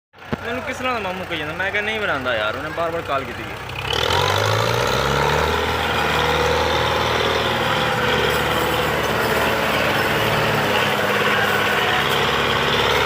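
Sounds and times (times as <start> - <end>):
tractor diesel engine running: 0.2 - 13.0.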